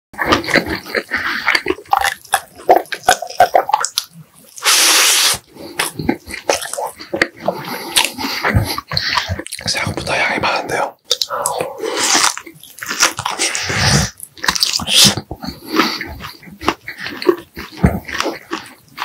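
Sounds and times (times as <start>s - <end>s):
chewing and lip smacking: 0.2s - 19.0s.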